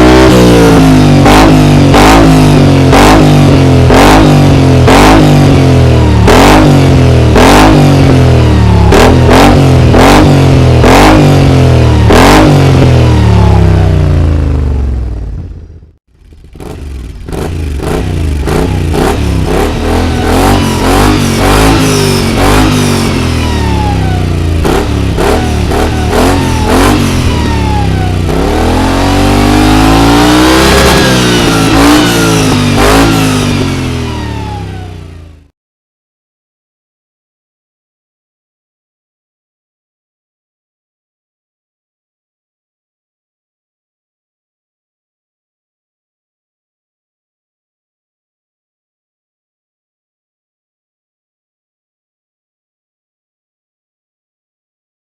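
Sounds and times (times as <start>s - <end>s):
scooter engine revving: 0.0s - 15.4s, 16.2s - 35.4s.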